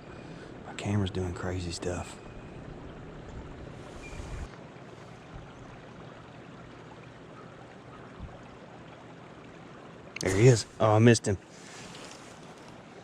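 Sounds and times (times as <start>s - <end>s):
river water rushing: 9.1s - 13.0s.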